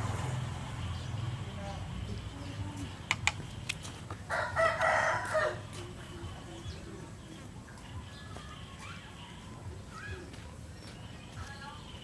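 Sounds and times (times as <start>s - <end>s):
rooster crowing: 4.3s - 5.7s.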